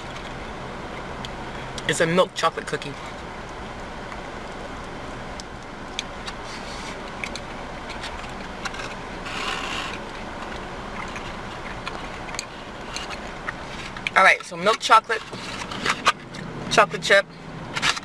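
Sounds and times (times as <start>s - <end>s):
chewing clicks: 3.0s - 6.4s, 7.0s - 8.7s, 9.9s - 14.2s.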